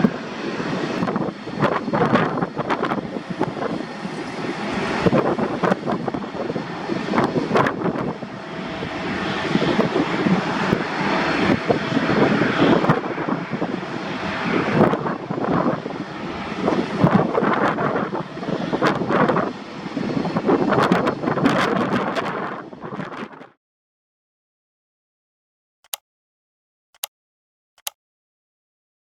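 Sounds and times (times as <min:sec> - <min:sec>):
airliner engine noise: 0:00.0 - 0:23.6.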